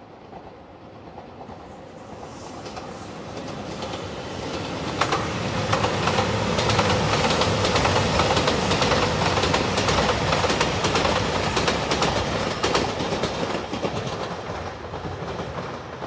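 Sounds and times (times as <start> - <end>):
diesel train passing: 0.0 - 16.0
wheels clicking over rail joints: 5.0 - 16.0.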